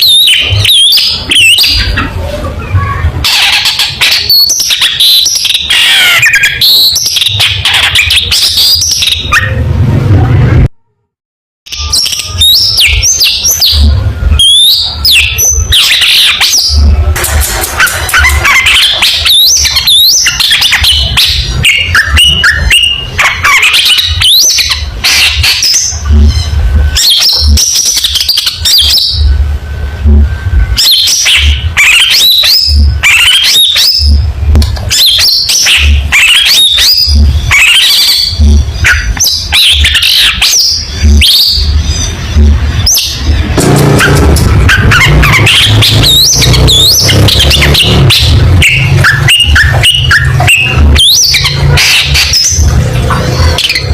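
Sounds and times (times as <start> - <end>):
shrike singing chirps and whistles: 11.7 - 17.0, 42.8 - 53.9
low rumble: 40.9 - 53.9.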